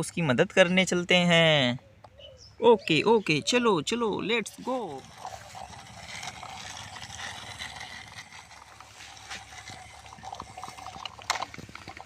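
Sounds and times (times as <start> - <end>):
toy electric motor whine: 4.4 - 12.0.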